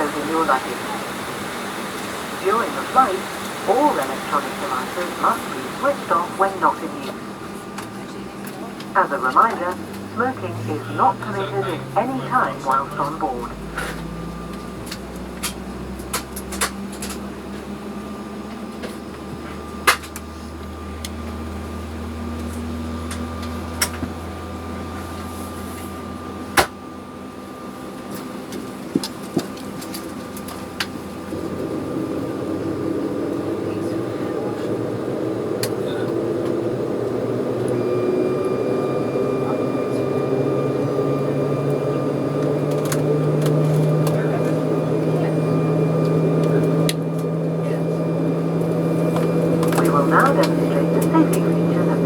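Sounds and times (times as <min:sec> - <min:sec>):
low hum rising in pitch: 0:09.1 - 0:18.5, 0:31.0 - 0:52.0.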